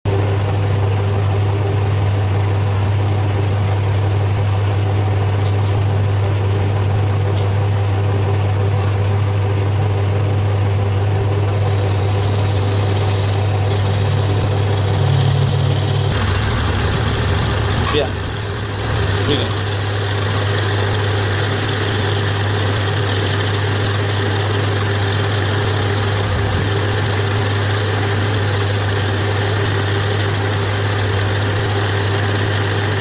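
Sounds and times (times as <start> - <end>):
metal lathe motor hum: 0.1 - 33.0
drill boring into metal: 11.5 - 33.0.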